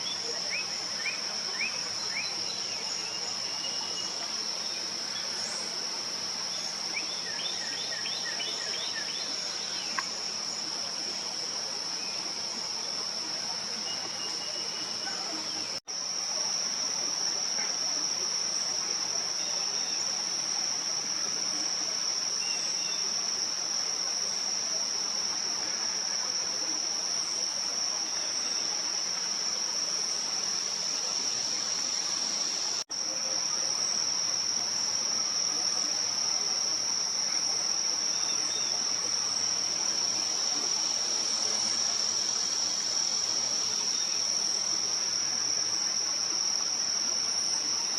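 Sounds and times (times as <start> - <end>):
insects trilling: 0.0 - 47.9.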